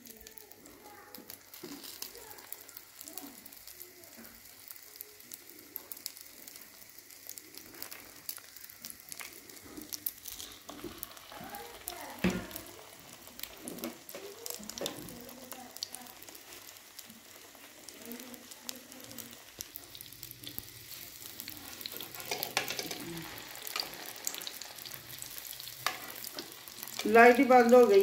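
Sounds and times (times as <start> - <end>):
kebabs sizzling in oil: 0.0 - 28.0.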